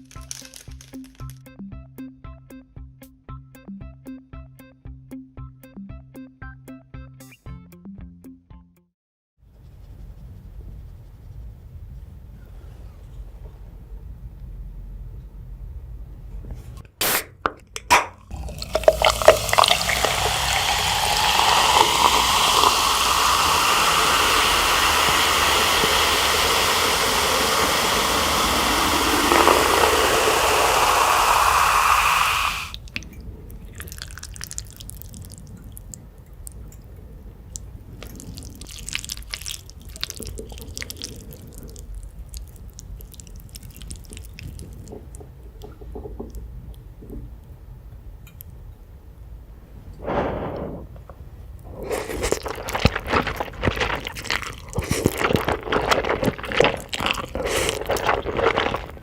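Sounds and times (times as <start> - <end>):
water running into a container: 18.3 - 35.9, 38.0 - 46.3, 51.8 - 59.0
faint taps and crackles: 42.6 - 47.6.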